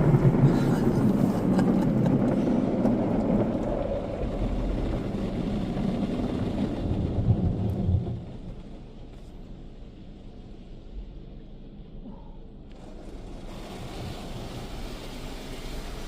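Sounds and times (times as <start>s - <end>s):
machine rumble: 0.0s - 16.0s
car wash spraying: 12.7s - 16.0s.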